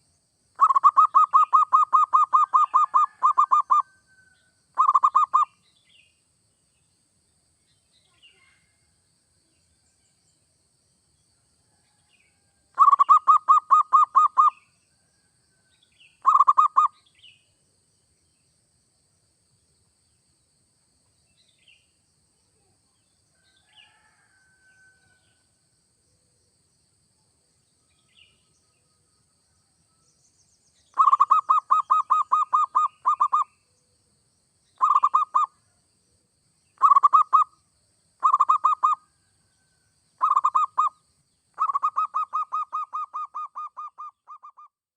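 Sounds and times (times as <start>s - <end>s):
dove cooing: 0.6s - 3.8s, 4.8s - 5.4s, 12.8s - 14.5s, 16.2s - 16.9s, 31.0s - 33.4s, 34.8s - 35.5s, 36.8s - 37.4s, 38.2s - 39.0s, 40.2s - 40.9s
faint small chirps: 7.6s - 8.8s.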